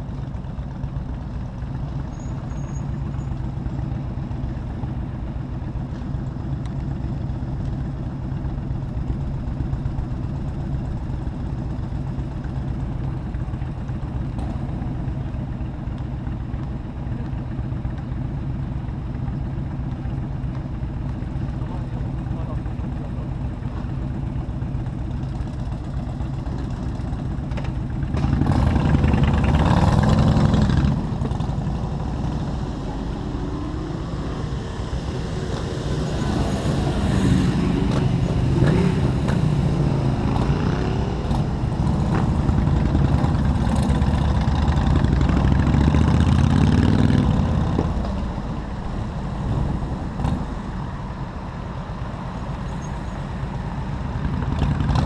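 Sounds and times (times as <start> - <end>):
road noise: 0.0 - 55.0
motorcycle engine revving: 25.2 - 51.6, 53.8 - 55.0.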